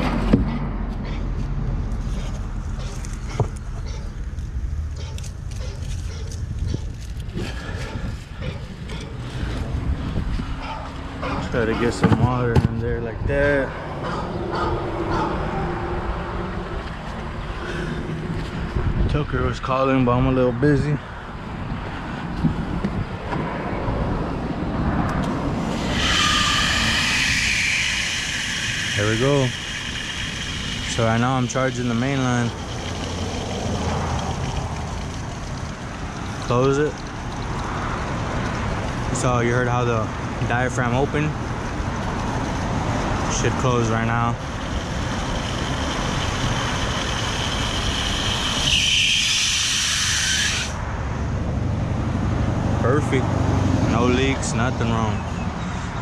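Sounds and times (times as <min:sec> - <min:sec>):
water hissing through pipe: 0:25.4 - 0:39.3, 0:42.5 - 0:50.8.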